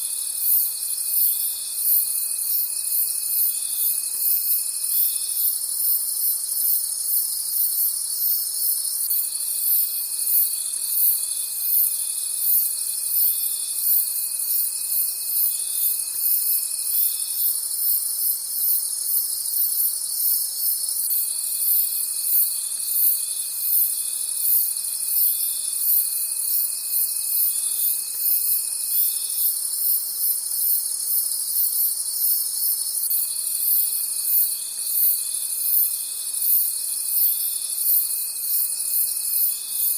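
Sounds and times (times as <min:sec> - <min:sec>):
crickets chirping: 0:00.0 - 0:39.9
low insect trill: 0:00.0 - 0:39.9.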